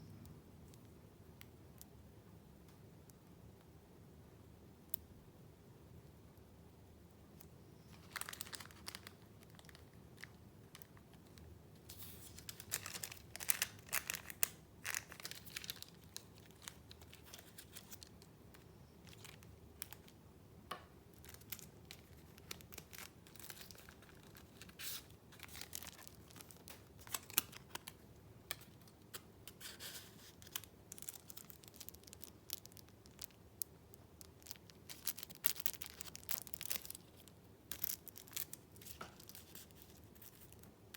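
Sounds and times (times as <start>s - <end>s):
paper rustling and crinkling: 7.9s - 10.9s, 11.8s - 18.2s, 21.2s - 28.8s, 29.5s - 32.9s.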